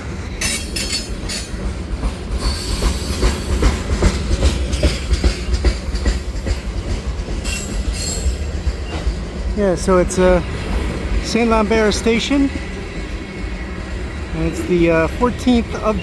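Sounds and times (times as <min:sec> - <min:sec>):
locomotive engines rumbling: 0:00.0 - 0:16.0
wheels clicking over rail joints: 0:00.4 - 0:12.6.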